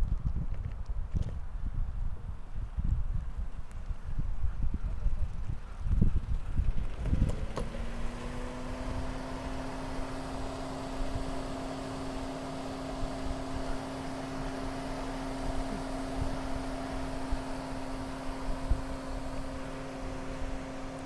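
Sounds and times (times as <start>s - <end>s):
motor humming: 6.6s - 21.0s.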